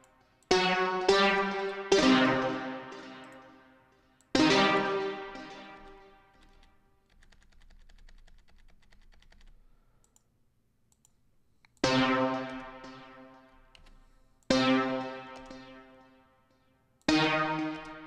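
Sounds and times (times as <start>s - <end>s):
synthesizer chords: 0.0s - 6.7s, 11.8s - 18.0s
computer keyboard clicking: 5.8s - 10.3s, 13.6s - 14.2s, 15.4s - 15.6s.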